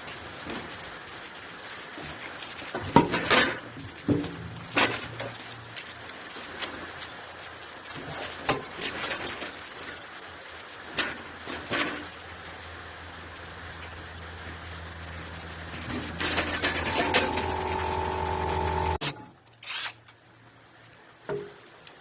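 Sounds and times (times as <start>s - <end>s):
tools and metal parts clinking: 15.8s - 18.1s.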